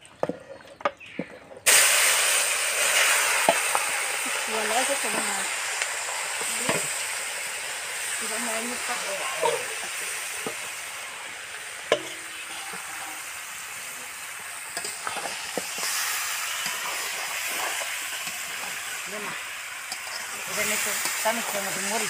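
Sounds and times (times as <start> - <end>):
chicken sizzling in hot oil: 1.2 - 22.0
metal spatula scraping a pan: 19.8 - 21.6.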